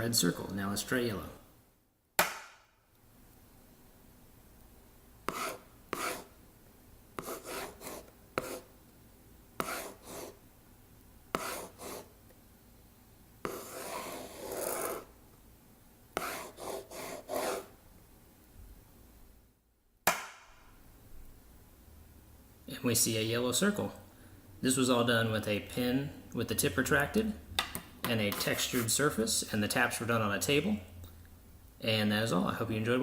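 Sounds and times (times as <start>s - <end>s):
sharp tap on table: 2.2s - 2.6s, 20.0s - 20.6s
pen tip scraping textured surface: 5.3s - 6.3s, 7.2s - 8.7s, 9.6s - 10.4s, 11.4s - 12.1s, 13.4s - 15.1s, 16.2s - 17.7s.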